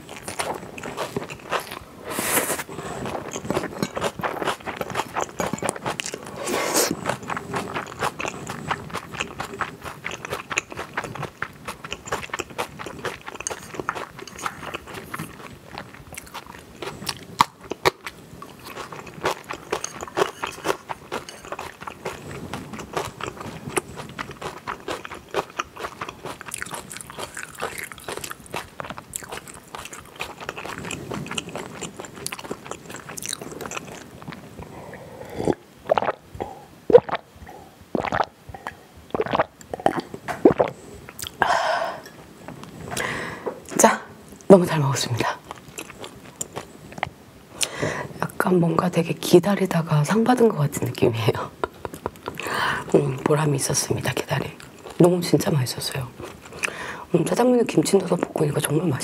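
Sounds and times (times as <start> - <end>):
person chewing food: 0.0 - 43.8, 45.4 - 48.1, 51.6 - 53.4, 54.3 - 56.9
wet mouth clicks: 38.0 - 41.4.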